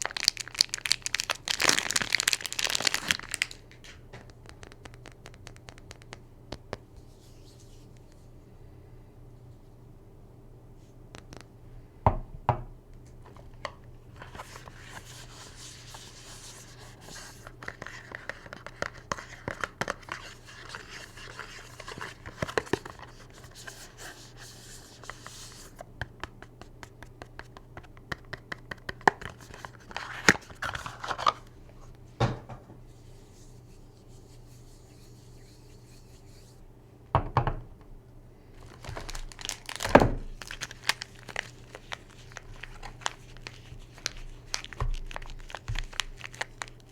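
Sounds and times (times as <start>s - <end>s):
packaging crinkling and tearing: 0.0s - 6.1s, 29.0s - 31.6s, 38.6s - 46.9s.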